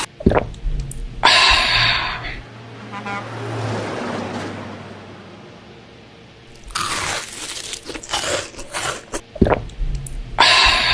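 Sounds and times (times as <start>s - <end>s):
irregular crunching: 6.5s - 10.3s.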